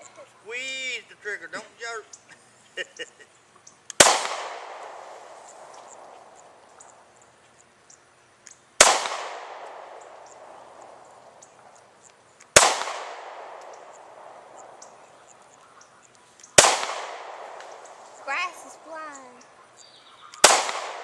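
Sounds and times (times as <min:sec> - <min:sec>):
handgun shots with echo: 0:04.0 - 0:05.0, 0:08.8 - 0:10.5, 0:12.6 - 0:14.3, 0:16.6 - 0:17.8, 0:20.4 - 0:21.0.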